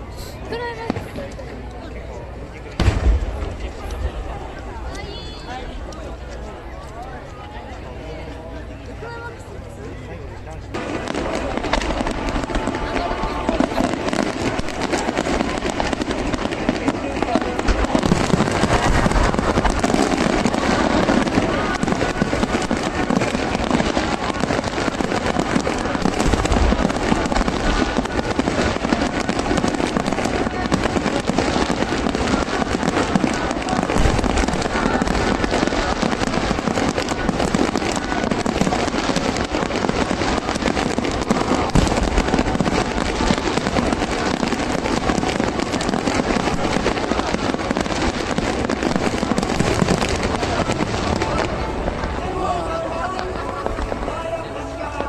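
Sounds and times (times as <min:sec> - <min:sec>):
fireworks bursts and crackling: 0:00.0 - 0:09.4, 0:10.6 - 0:55.0
heavy low firework booms: 0:02.8 - 0:04.5, 0:10.7 - 0:52.2.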